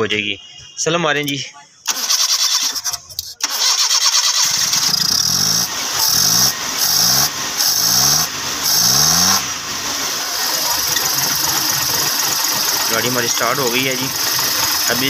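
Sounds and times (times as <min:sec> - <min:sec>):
car engine revving: 0:03.4 - 0:15.0.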